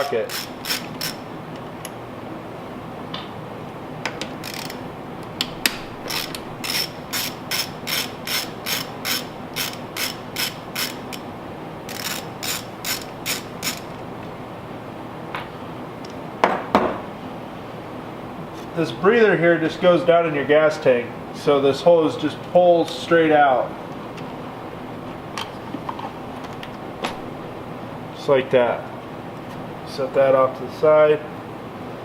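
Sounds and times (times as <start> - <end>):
ratchet wrench clicking: 0.0 - 1.2, 4.4 - 4.8, 6.0 - 11.2, 11.9 - 14.0.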